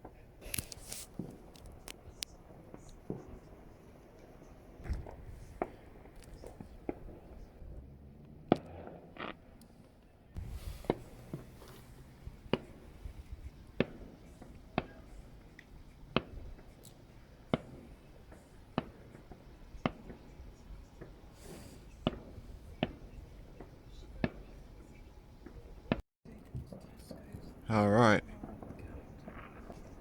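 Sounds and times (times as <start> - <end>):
distant fireworks bangs: 0.0 - 9.7, 10.4 - 26.0, 26.7 - 30.0.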